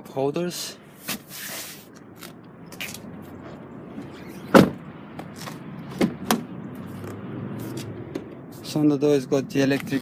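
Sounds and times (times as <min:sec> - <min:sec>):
solid thump: 0:04.5 - 0:04.8.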